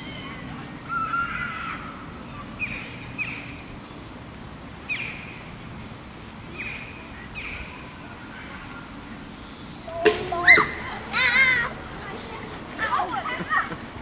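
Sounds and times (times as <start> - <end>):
low background noise: 0.0 - 14.0
birds calling: 4.8 - 14.0.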